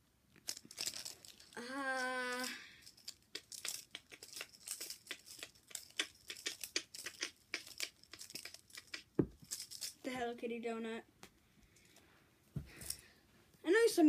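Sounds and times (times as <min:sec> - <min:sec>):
foam toys crinkling and rustling: 0:00.4 - 0:10.0.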